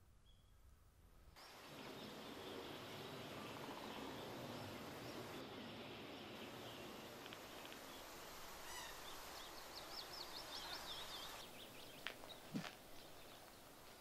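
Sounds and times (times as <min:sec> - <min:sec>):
faint background noise: 0:00.0 - 0:14.0
bird singing high call: 0:00.2 - 0:00.6, 0:08.6 - 0:12.5.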